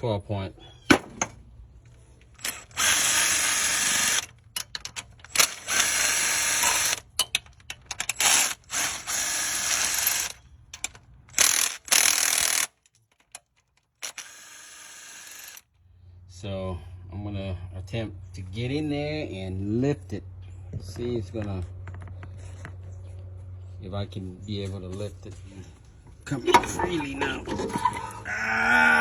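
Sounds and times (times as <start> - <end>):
power wrench running in bursts: 2.3 - 4.4, 5.2 - 7.1, 8.0 - 12.8, 14.0 - 15.6.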